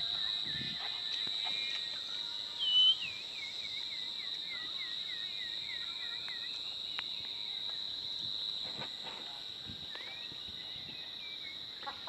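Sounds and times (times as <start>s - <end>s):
insects droning high-pitched: 0.0s - 12.0s
bird whistling: 1.1s - 5.8s.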